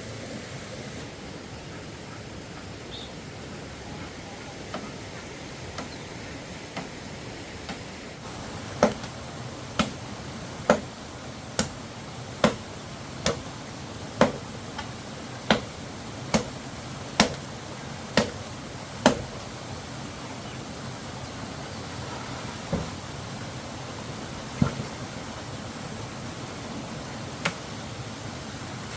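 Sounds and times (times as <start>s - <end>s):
sharp knocks: 8.8s - 9.1s, 9.8s - 10.0s, 10.7s - 10.9s.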